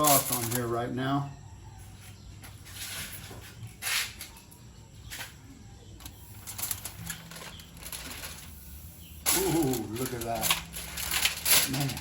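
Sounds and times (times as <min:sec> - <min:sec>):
aluminium foil crinkling: 0:06.0 - 0:12.0.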